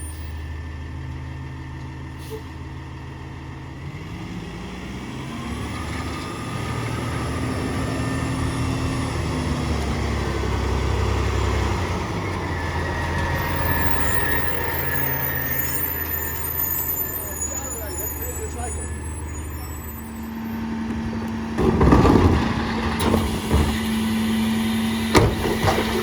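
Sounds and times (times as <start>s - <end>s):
truck diesel engine revving: 0.0s - 26.0s
thin high-pitched squeal: 13.3s - 20.4s.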